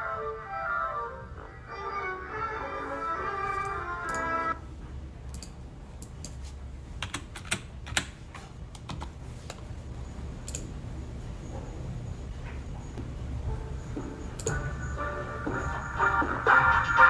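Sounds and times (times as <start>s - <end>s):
music: 0.0s - 4.6s, 13.5s - 17.0s
low steady hum: 0.0s - 17.0s
light irregular clicks: 5.3s - 6.4s, 10.4s - 10.7s, 14.4s - 14.6s.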